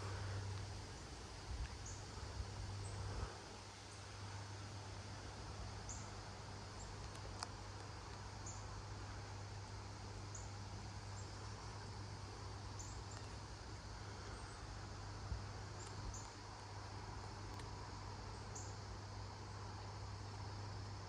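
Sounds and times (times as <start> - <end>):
low hum: 0.0 - 19.6.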